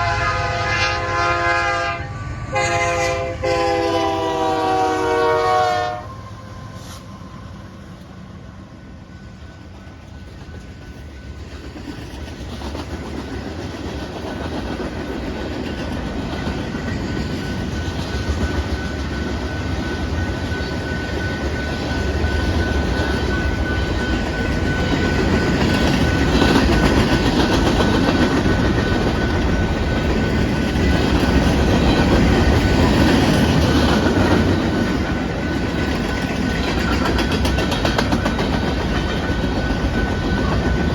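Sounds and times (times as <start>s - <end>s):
freight train rumble and wheel clatter: 0.0s - 40.9s
steady high-pitched tone: 15.9s - 40.9s.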